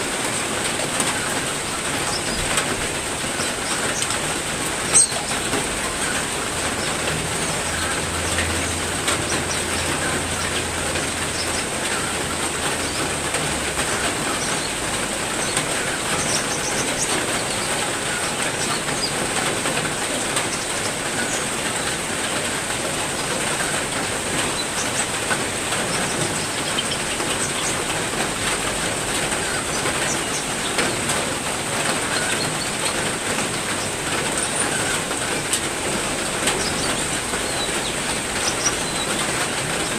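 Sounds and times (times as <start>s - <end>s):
heavy rain falling: 0.0s - 39.9s
bird chirps: 4.9s - 5.4s.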